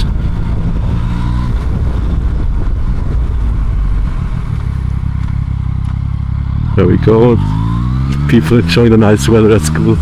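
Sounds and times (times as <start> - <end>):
wind noise: 0.0 - 5.6
motorcycle engine running: 0.0 - 10.0
road noise: 0.0 - 10.0.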